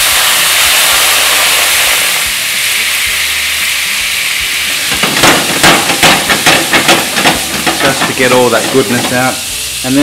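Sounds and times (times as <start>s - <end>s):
wine sizzling in a frying pan: 0.0s - 10.0s
utensil scraping a pan: 4.8s - 9.4s.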